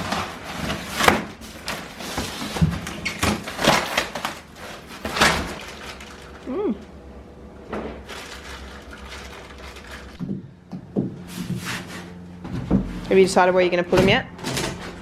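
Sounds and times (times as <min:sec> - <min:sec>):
knocks and thuds on plastic tank: 0:10.2 - 0:11.2
scraping and rustling: 0:11.2 - 0:13.2.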